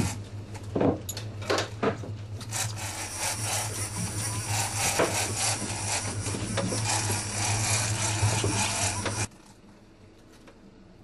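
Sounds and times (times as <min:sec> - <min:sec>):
boat motors humming: 0:02.5 - 0:09.3.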